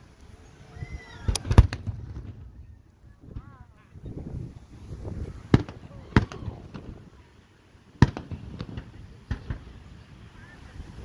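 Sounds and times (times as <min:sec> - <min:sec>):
firework shells bursting: 0:01.1 - 0:10.4
faint firework cracks: 0:01.2 - 0:03.8, 0:05.0 - 0:07.4, 0:08.0 - 0:10.7.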